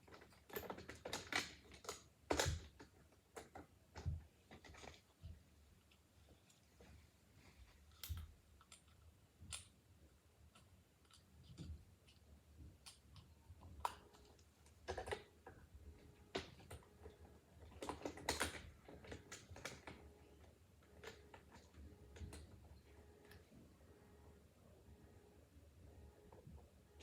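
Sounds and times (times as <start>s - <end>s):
small objects clicking and knocking: 0.0s - 6.6s, 10.5s - 20.0s.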